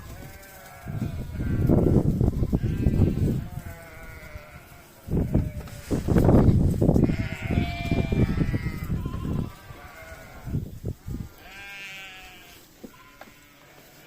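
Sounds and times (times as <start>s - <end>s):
lambs bleating: 0.1s - 6.0s, 7.0s - 10.6s, 11.3s - 14.0s.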